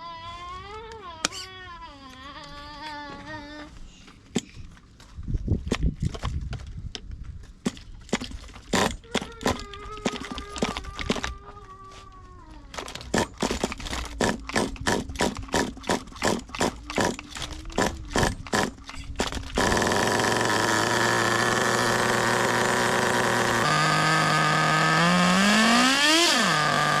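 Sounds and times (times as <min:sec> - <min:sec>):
model engine cranking: 0:08.1 - 0:11.3, 0:12.7 - 0:27.0
two-stroke engine idling and revving: 0:14.2 - 0:27.0.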